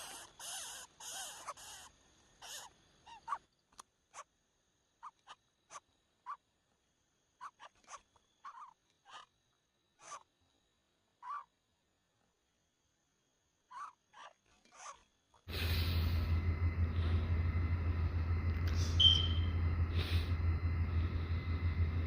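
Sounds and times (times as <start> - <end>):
short sharp chirps and clicks: 18.7 - 19.5.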